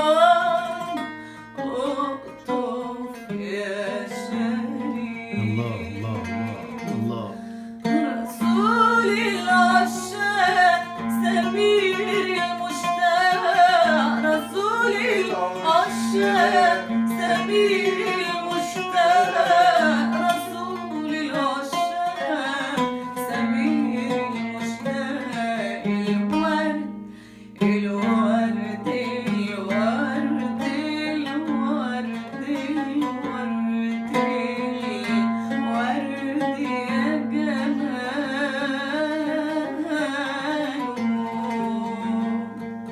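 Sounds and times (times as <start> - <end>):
plucked strings: 0.0 - 42.9
person singing ornamented melody: 1.9 - 8.6.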